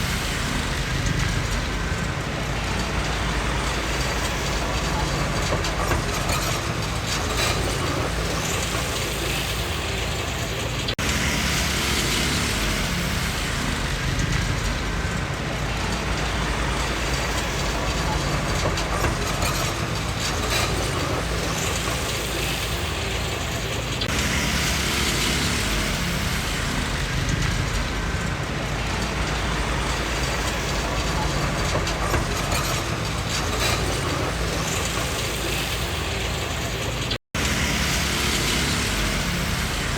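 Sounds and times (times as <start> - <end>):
bulldozer diesel engine running: 0.0 - 39.9
steel tracks clattering: 0.0 - 39.9.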